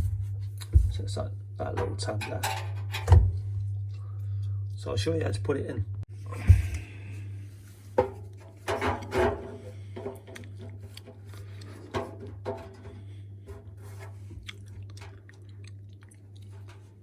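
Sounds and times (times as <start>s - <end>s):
steady low hum: 0.0s - 17.0s
plastic scraping against drum: 7.6s - 14.4s.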